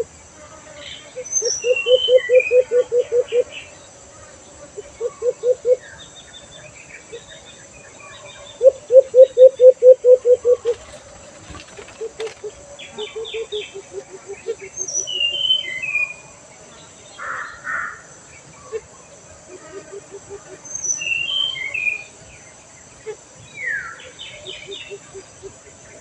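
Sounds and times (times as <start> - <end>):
small birds chirping: 0.7 - 17.6
dove cooing: 1.5 - 3.5, 4.8 - 5.8, 8.6 - 15.5.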